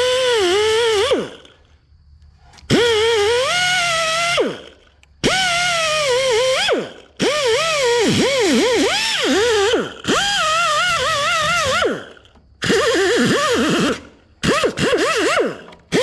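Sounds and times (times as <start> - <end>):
grinder whining on steel: 0.0 - 1.7, 2.4 - 16.0.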